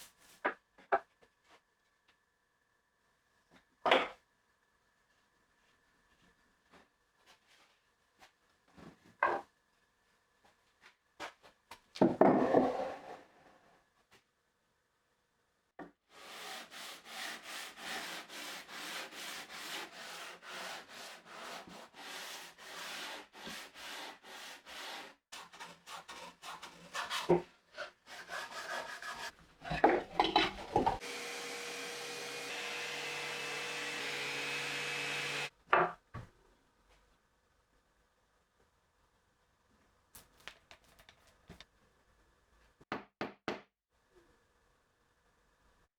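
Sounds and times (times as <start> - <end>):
hand tool rubbing on wood: 16.2 - 29.8.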